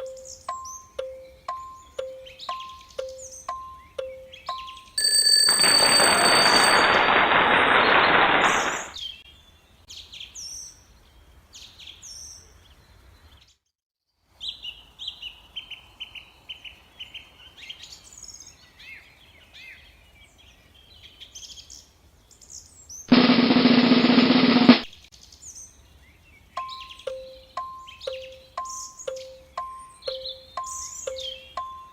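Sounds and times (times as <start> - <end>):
small birds chirping: 0.0 - 5.0, 25.1 - 31.9.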